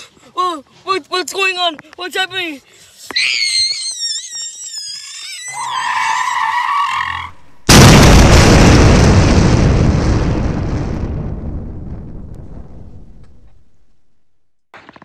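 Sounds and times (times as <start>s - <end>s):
tyres squealing: 3.1s - 7.4s
loud crash boom: 7.7s - 13.7s.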